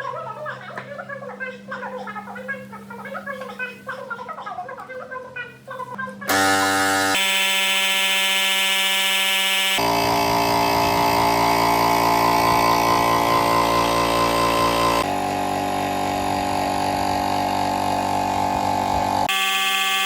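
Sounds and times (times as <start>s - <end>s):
air compressor running: 6.3s - 20.0s.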